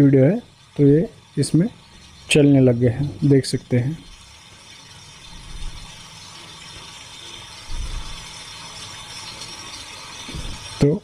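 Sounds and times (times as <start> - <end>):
rain hiss and patter: 0.0 - 11.0
dull low bumps: 7.7 - 8.3.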